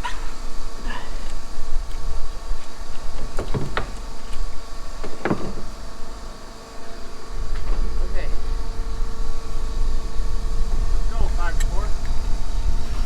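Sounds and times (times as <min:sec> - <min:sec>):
machine hum: 0:00.0 - 0:13.0
low rumble: 0:07.3 - 0:13.0.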